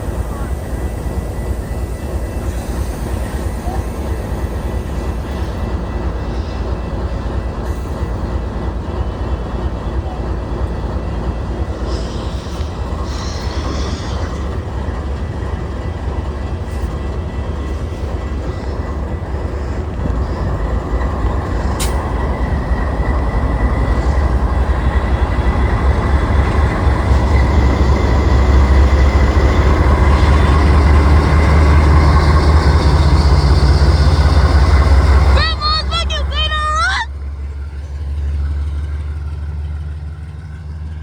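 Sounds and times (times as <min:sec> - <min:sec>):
train rumbling on rails: 0:00.0 - 0:41.0.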